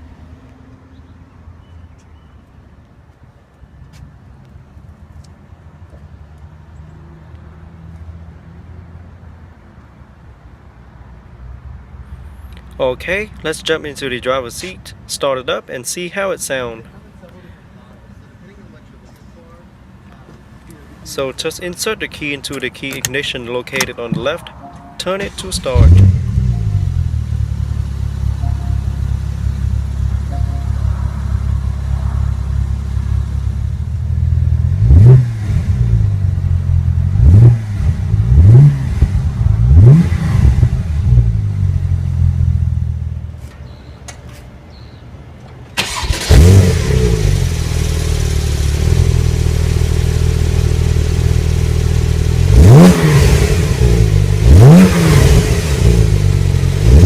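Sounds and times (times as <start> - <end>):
engine throttle blips: 23.8 - 36.2
car engine idling: 23.9 - 34.9, 45.5 - 56.9.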